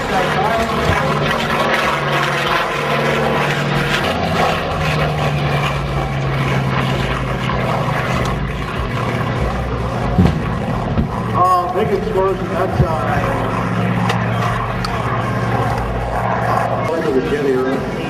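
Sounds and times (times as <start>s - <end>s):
propeller plane flying past: 0.0s - 18.0s.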